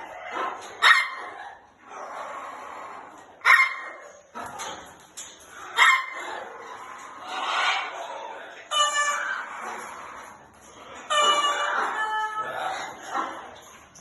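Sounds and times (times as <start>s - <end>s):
faint background animal calls: 5.6s - 14.0s
loud animal calls: 5.7s - 13.6s.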